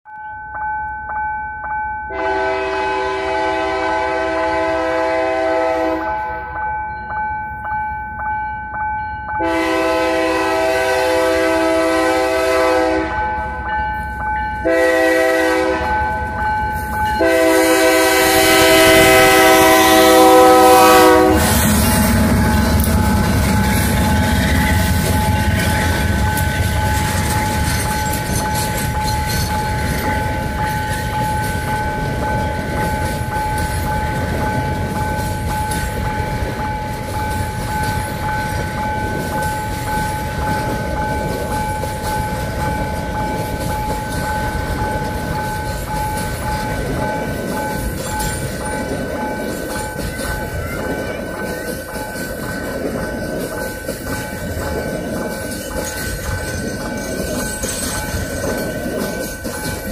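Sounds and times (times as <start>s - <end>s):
locomotive air horn: 2.1s - 6.4s, 9.4s - 13.2s, 14.6s - 16.0s, 17.2s - 23.5s
train rumbling past: 2.1s - 59.9s
pulsing crossing signal tone: 14.6s - 59.9s
wheels clicking over rail joints: 18.0s - 59.9s.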